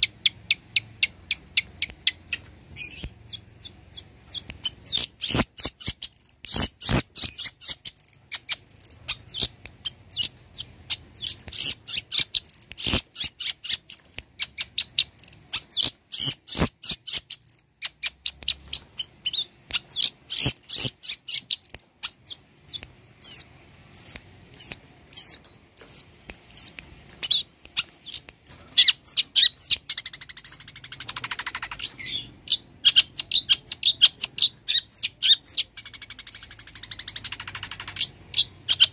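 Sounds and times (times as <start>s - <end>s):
bird singing chirps and clicks: 0.0s - 38.9s.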